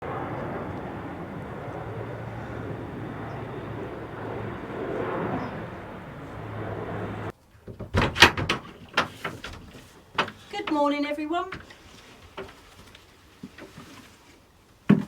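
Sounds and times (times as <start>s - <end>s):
plane engine drone overhead: 0.0s - 7.3s
sharp knocks and clatter: 7.6s - 10.8s.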